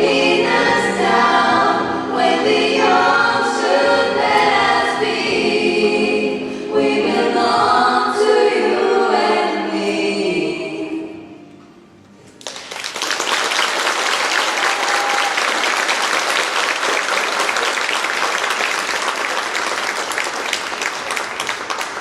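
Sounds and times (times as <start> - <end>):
audience applauding: 12.4 - 22.0.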